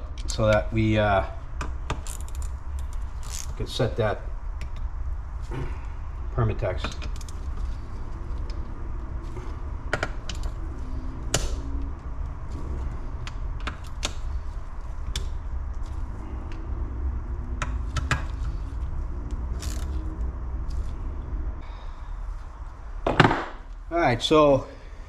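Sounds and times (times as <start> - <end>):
steady low hum: 0.0 - 25.0
wrench metallic clicks: 19.6 - 20.0.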